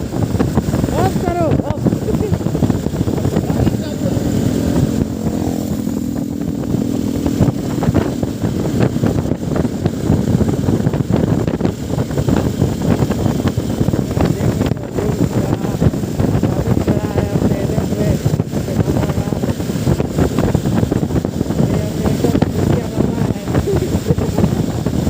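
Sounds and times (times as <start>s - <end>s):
motorcycle engine running: 0.0s - 25.0s
wind buffeting microphone: 0.0s - 25.0s.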